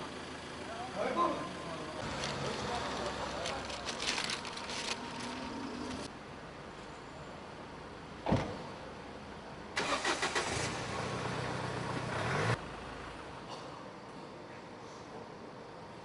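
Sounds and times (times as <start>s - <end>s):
vehicle engine cranking and running: 0.0s - 6.1s, 9.8s - 12.1s.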